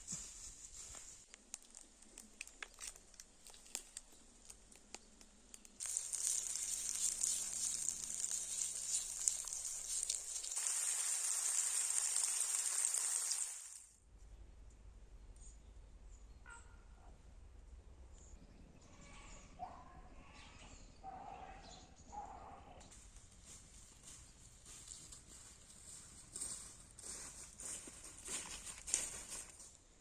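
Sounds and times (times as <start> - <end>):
meat sizzling on hot stone: 5.8 - 13.9.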